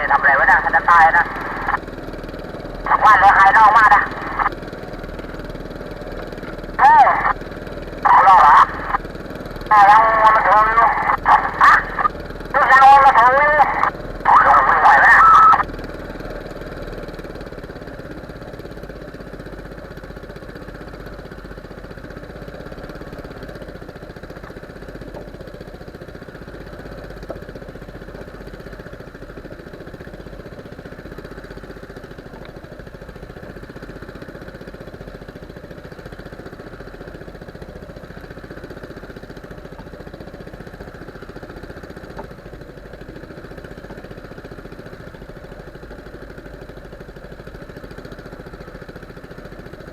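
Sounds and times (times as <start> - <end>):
boat engine running: 0.0 - 49.9.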